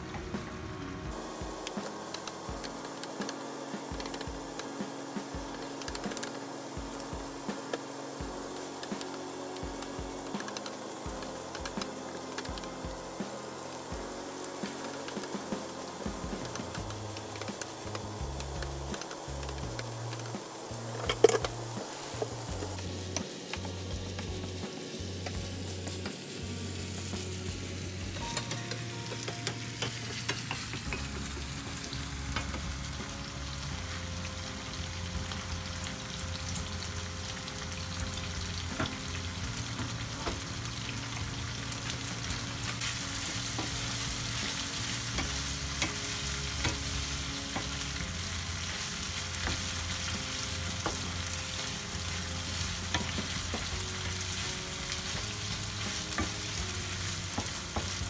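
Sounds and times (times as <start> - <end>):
food sizzling in a pan: 0.4 - 58.0.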